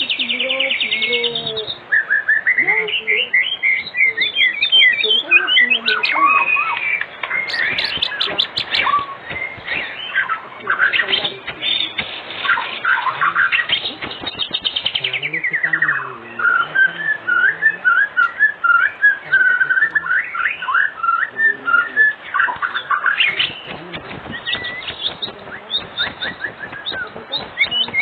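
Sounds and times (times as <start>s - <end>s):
bird singing trills and whistles: 0.0s - 28.0s.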